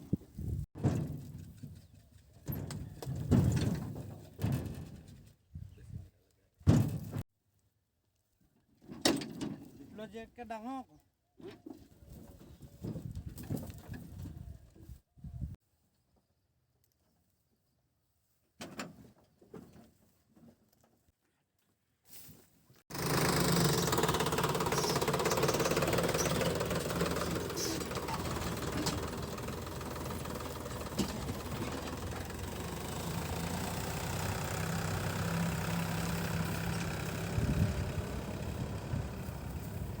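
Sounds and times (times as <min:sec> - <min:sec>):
tractor diesel engine running: 0:22.9 - 0:40.0.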